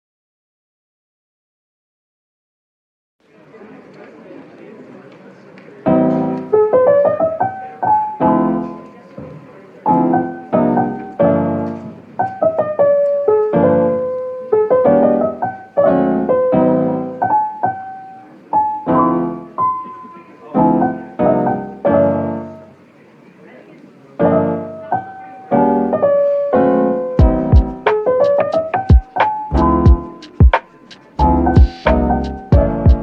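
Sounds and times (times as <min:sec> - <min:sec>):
soft piano music: 0:05.8 - 0:22.9, 0:24.1 - 0:33.0.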